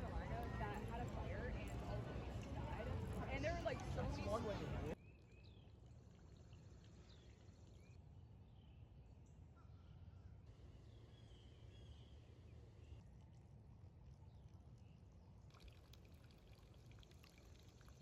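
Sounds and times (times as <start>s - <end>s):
low steady rumble: 0.0s - 5.0s.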